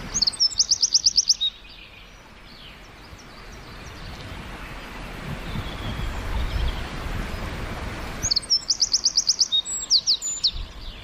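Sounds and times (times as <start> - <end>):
songbird trilling: 0.0 - 2.8, 8.2 - 11.0.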